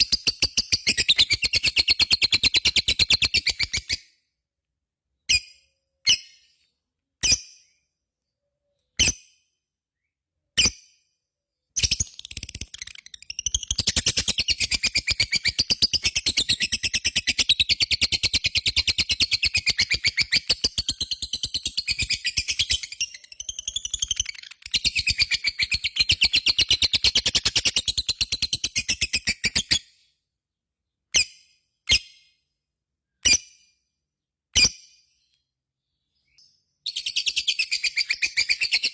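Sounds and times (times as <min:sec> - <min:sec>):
sharp bird calls: 0:36.1 - 0:38.9.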